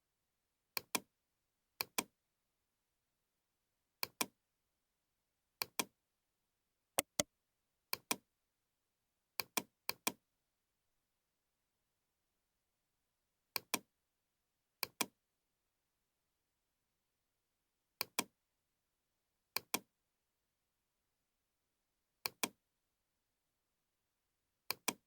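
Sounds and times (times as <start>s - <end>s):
computer mouse clicking: 7.0s - 7.2s.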